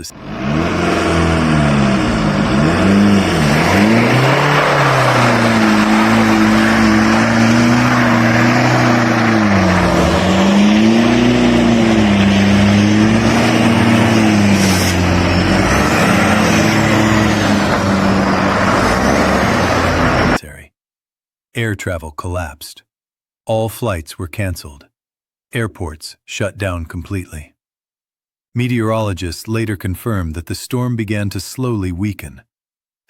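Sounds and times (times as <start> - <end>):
vehicle engine revving: 0.1 - 20.4
loud rushing noise: 0.2 - 20.4.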